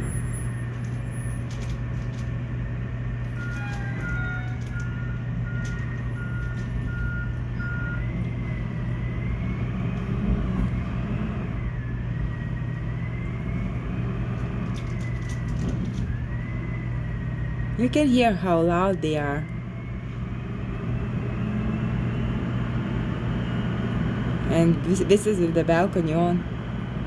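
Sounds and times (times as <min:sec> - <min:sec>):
diesel engines idling: 0:00.0 - 0:27.0
wavering whine: 0:00.0 - 0:27.0
reversing alarm beeping: 0:02.6 - 0:26.4.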